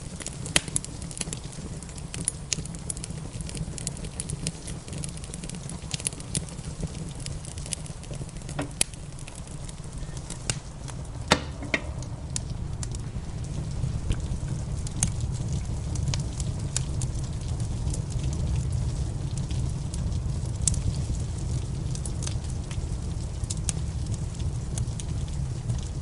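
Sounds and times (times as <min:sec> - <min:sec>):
wood fire crackling: 0:00.0 - 0:26.0
low rumble: 0:06.3 - 0:26.0.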